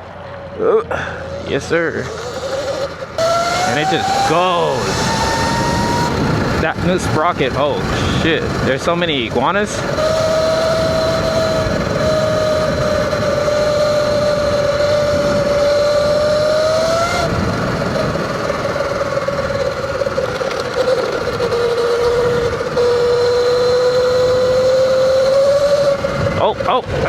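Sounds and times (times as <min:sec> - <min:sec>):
tyre noise: 0:00.0 - 0:27.0
electric motor whine: 0:01.1 - 0:26.5
wind noise: 0:01.4 - 0:27.0.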